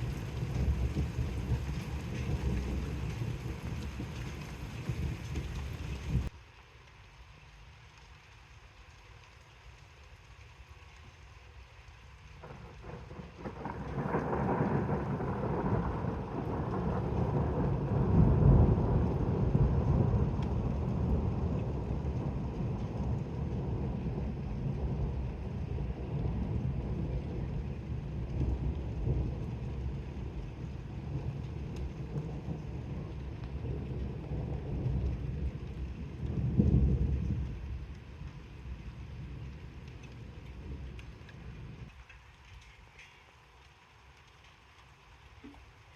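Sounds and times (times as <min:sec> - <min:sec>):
thunder rumbling: 0:00.0 - 0:06.3, 0:12.4 - 0:41.9.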